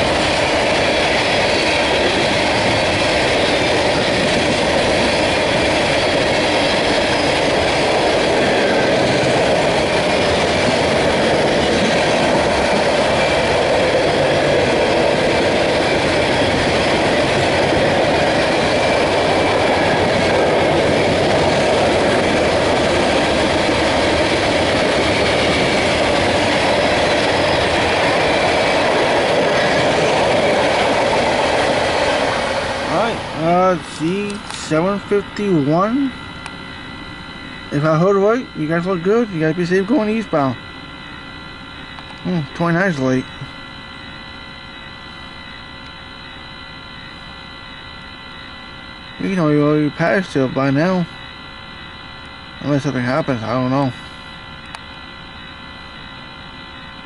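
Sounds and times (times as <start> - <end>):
train wheels rumbling on track: 0.0 - 41.0.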